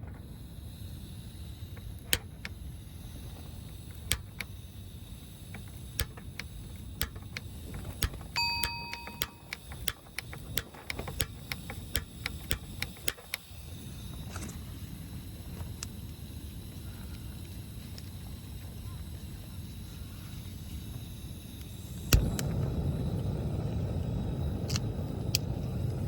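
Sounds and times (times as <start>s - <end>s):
sharp clicks and taps: 5.5s - 13.4s
short electronic beep: 8.4s - 9.5s.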